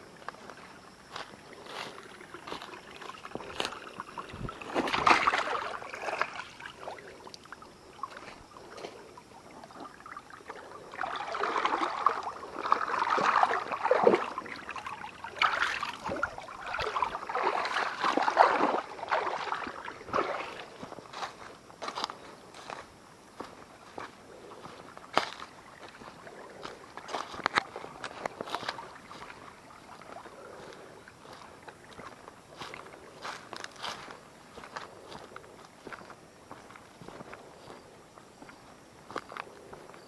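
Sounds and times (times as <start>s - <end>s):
water sloshing and splashing: 0.0s - 39.9s.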